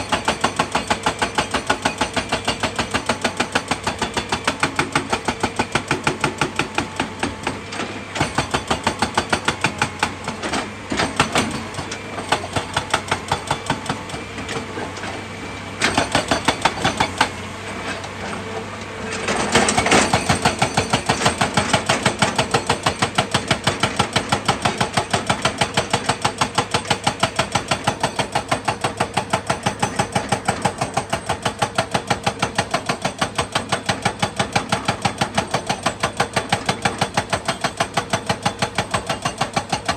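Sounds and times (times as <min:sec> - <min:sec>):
excavator engine pulsing: 0:00.1 - 0:39.9.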